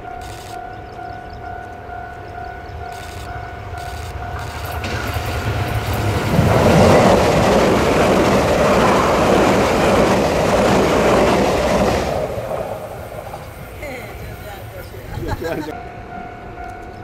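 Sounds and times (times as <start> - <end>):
level crossing warning signal: 0.0 - 14.8
wheels clattering on rails: 0.0 - 15.7
train passing: 0.0 - 17.0.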